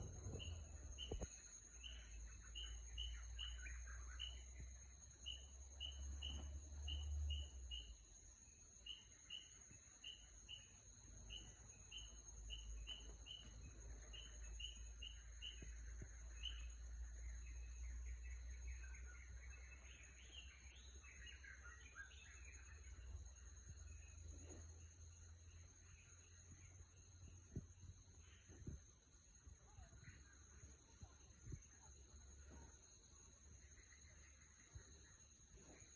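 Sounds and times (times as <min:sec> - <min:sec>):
low wind-like rumble: 0:00.0 - 0:01.9
bird warbling song: 0:00.0 - 0:08.0, 0:08.8 - 0:32.7
bird chirping: 0:00.0 - 0:35.9.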